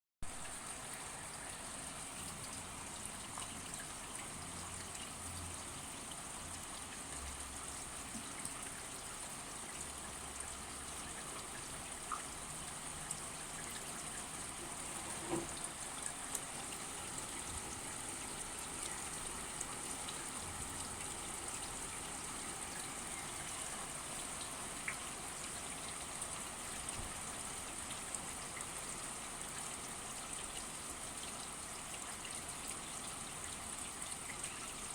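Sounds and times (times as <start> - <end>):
steady rain falling: 0.3 - 34.9
drops and drips ticking: 0.4 - 34.9.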